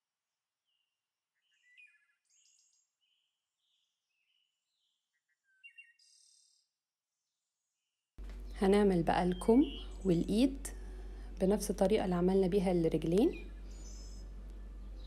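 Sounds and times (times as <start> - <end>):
faint bird chirps: 0.6 - 6.8, 8.4 - 10.8, 13.3 - 15.0.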